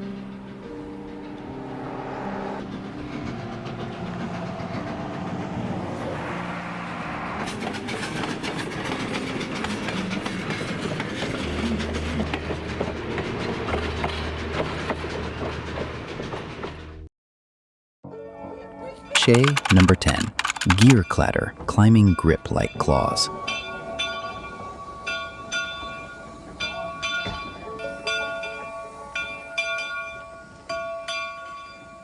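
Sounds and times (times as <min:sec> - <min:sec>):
steam locomotive clatter: 0:07.5 - 0:16.6.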